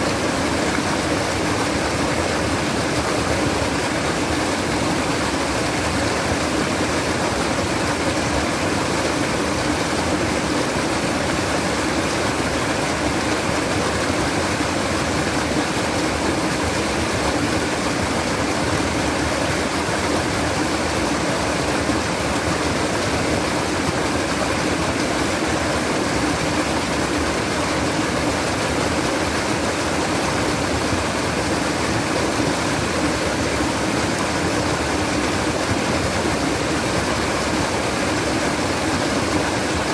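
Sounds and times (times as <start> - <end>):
water babbling: 0.0 - 39.9.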